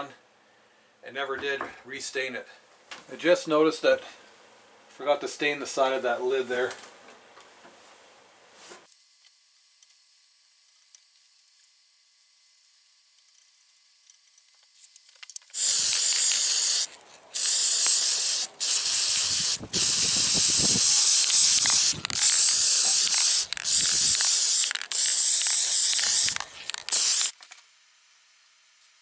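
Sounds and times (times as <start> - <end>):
aerosol spray can hissing: 15.5 - 27.4.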